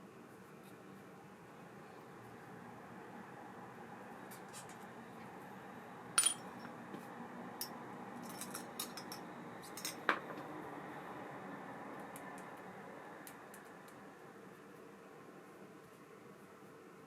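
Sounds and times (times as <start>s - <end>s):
small metal parts clinking: 6.2s - 6.6s, 8.2s - 10.0s.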